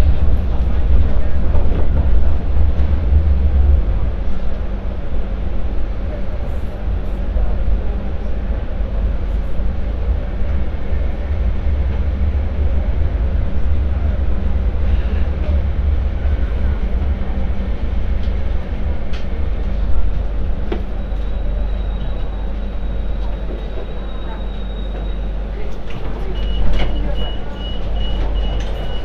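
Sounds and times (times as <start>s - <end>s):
light rail vehicle rumbling: 0.0s - 29.0s.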